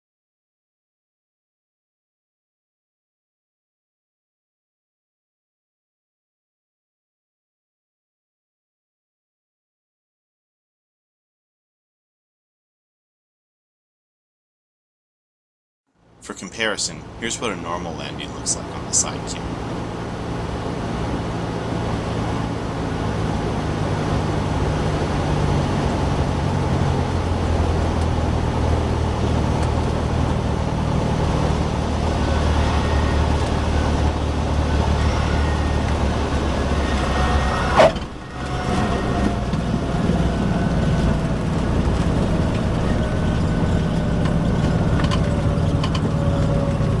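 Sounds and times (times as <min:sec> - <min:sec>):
light aircraft engine and propeller: 0:16.0 - 0:47.0
airflow noise: 0:37.7 - 0:38.2.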